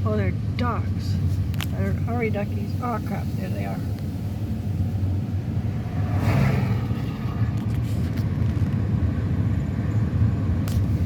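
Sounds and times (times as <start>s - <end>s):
engine and road rumble: 0.0s - 11.0s
rushing noise: 2.4s - 9.0s.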